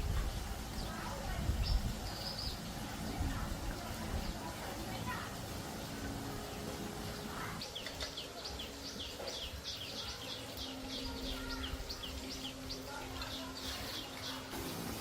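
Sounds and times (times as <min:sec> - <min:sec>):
small bird chirping: 0:00.8 - 0:05.2.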